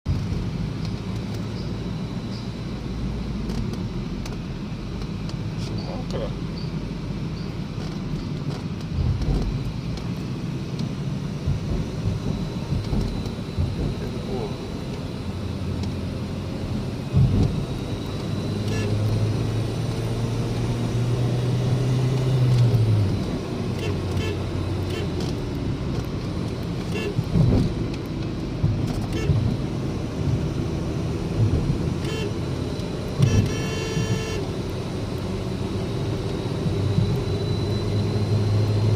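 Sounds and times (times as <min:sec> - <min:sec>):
car engine low rumble: 0:00.0 - 0:38.9
road noise: 0:00.1 - 0:38.9
car horn: 0:18.6 - 0:19.1, 0:23.7 - 0:25.2, 0:26.9 - 0:27.3, 0:29.1 - 0:29.4, 0:32.0 - 0:32.5, 0:33.2 - 0:34.6.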